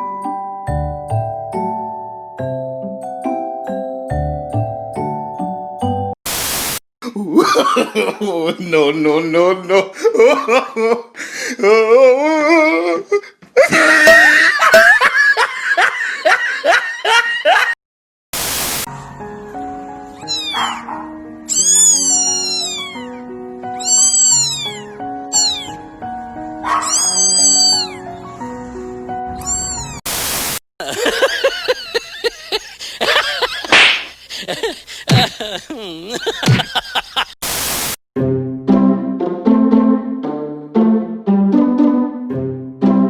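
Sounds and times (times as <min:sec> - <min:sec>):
background piano music: 0:00.0 - 0:06.2, 0:18.9 - 0:30.0, 0:38.2 - 0:43.0
kittens meowing: 0:20.2 - 0:20.9, 0:21.5 - 0:25.8, 0:26.7 - 0:28.2, 0:29.4 - 0:30.0.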